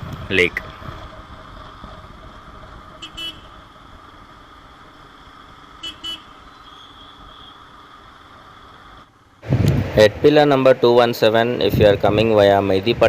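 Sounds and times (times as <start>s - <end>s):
wind noise: 0.0s - 4.3s, 9.4s - 13.0s
motorcycle riding: 0.0s - 13.0s
vehicle horn toots: 3.0s - 3.6s, 5.8s - 7.6s.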